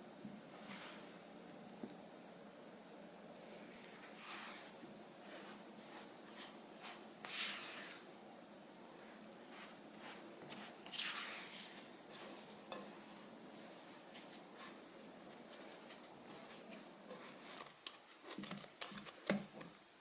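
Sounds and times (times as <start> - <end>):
utensil stirring in a bowl: 3.6 - 8.1, 9.0 - 19.8.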